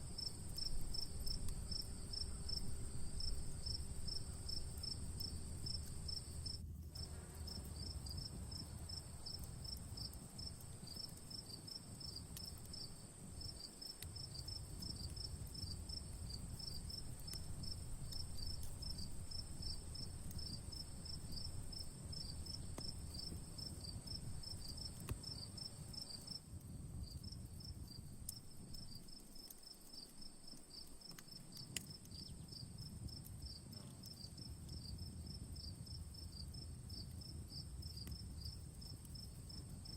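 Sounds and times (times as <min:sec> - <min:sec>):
crickets chirping: 0:00.0 - 0:26.4, 0:27.0 - 0:39.9
high insect drone: 0:00.0 - 0:26.4
campfire crackling: 0:00.0 - 0:39.9.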